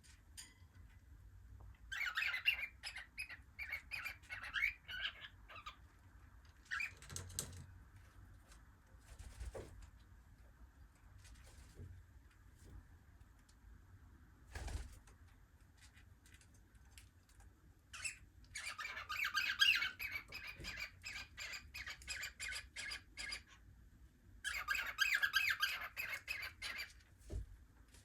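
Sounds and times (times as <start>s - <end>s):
cockatiels squawking: 1.9s - 5.8s, 18.0s - 23.6s, 24.5s - 27.0s.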